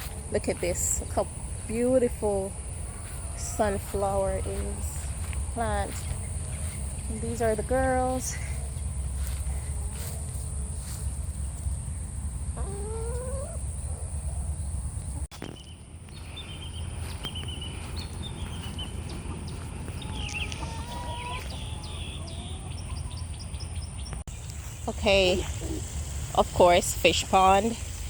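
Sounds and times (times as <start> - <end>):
hens clucking: 0.0 - 10.5, 12.5 - 13.7, 17.8 - 23.2, 24.8 - 28.0
steady low rumble: 0.0 - 28.0.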